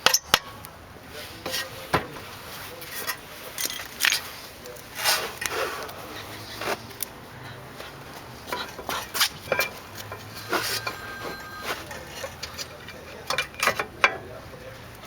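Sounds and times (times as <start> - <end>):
hand tools and parts clinking: 2.8 - 7.2, 8.4 - 15.0.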